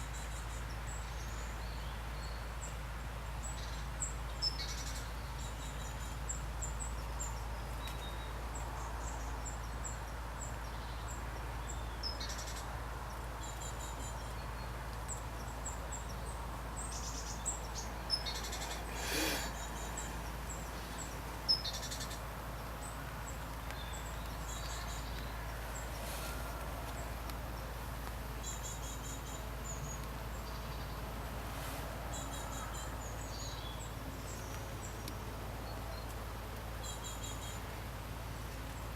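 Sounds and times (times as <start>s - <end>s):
rain hiss: 0.0s - 38.9s
high thin bird calls: 18.1s - 20.2s.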